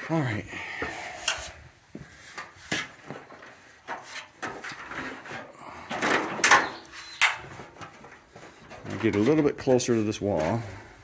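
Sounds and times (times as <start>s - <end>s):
ladder knocking and rattling: 2.4s - 9.8s.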